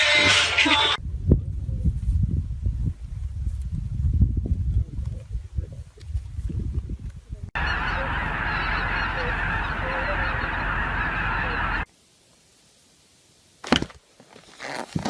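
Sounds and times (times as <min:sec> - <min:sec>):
low rumbling noise: 0:07.5 - 0:11.9
many birds calling: 0:07.6 - 0:11.8.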